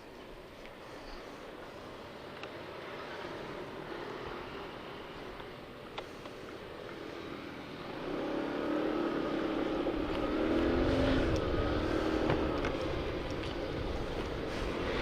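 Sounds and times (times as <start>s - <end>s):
motorcycle engine accelerating: 6.9s - 15.0s
wind buffeting microphone: 9.8s - 15.0s.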